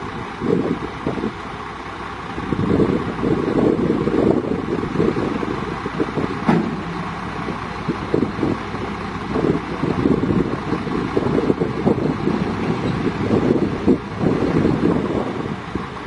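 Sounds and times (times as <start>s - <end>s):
heavy diesel machinery running: 0.0s - 16.0s
wind buffeting microphone: 2.3s - 16.0s
sharp knock: 6.4s - 7.6s.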